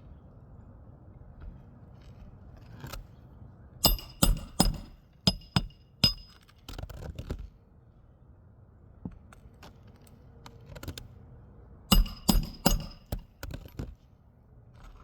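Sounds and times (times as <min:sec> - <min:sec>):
hammer striking nails: 0:03.8 - 0:06.5, 0:11.9 - 0:13.4.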